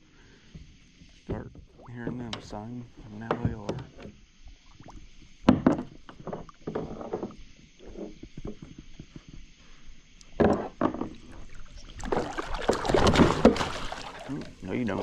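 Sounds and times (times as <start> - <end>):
knocks and bumps on a kayak: 3.2 - 4.2, 5.4 - 9.4, 10.4 - 14.7
fish thrashing: 11.1 - 15.0.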